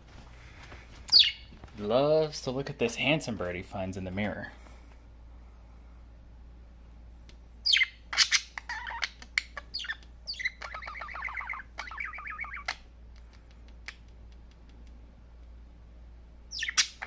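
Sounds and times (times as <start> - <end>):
budgerigar squawking and chattering: 1.1 - 1.5, 7.6 - 12.8, 16.5 - 17.0.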